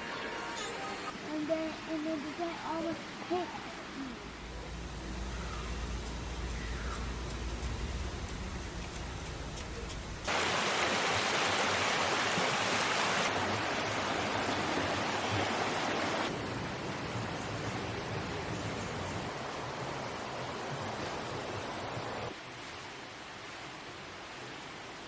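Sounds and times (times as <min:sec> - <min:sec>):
rushing water: 0:02.9 - 0:16.5.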